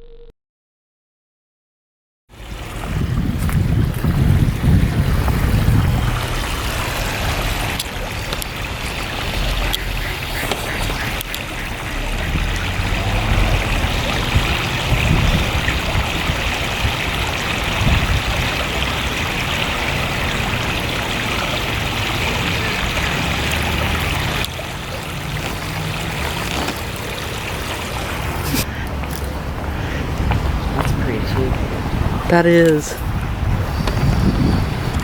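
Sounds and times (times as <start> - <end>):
river water rushing: 2.4 - 3.1, 4.5 - 33.4.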